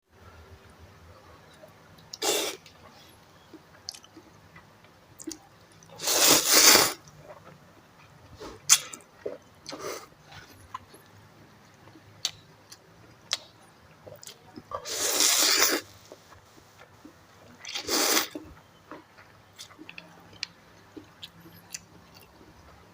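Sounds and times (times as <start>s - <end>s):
person slurping noodles: 2.2s - 2.6s, 6.0s - 7.0s, 14.7s - 15.9s, 17.7s - 18.4s.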